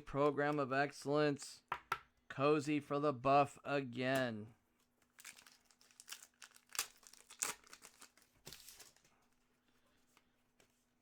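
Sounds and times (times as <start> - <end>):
cards rustling: 5.0 - 9.4
wrappers crinkling and tearing: 5.0 - 9.4.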